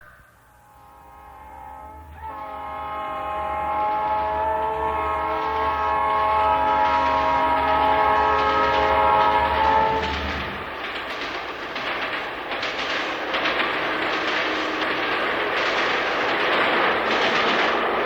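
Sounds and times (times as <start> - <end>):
locomotive rumble: 0.2 - 18.0
train horn blast: 0.5 - 10.8.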